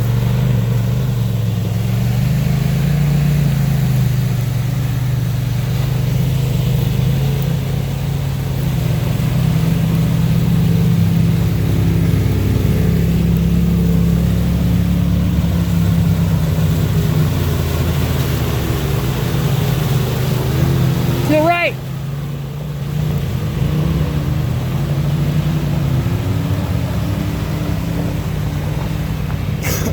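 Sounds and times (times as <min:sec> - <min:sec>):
utility vehicle engine running: 0:00.0 - 0:29.9.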